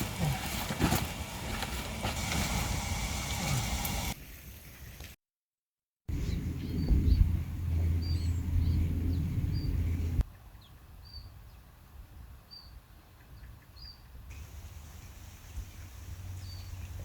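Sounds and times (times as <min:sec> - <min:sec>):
loud low rumble: 0:06.1 - 0:10.2
small bird chirping: 0:12.5 - 0:14.2.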